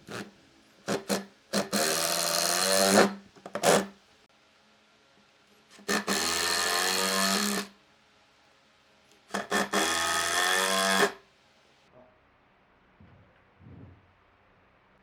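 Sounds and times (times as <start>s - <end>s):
electric drill running: 0.9s - 3.9s, 5.8s - 7.7s, 9.3s - 11.2s.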